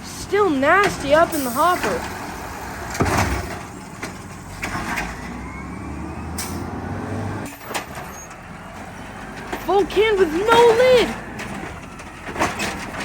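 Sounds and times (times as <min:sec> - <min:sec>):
garbage truck engine running: 0:00.0 - 0:13.0
knocks and clanks: 0:01.8 - 0:05.3, 0:07.4 - 0:13.0.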